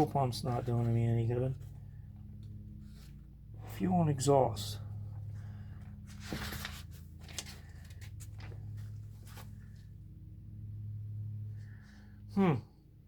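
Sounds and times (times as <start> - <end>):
steady low hum: 0.0 - 13.0
paper pages rustling and turning: 5.8 - 9.8.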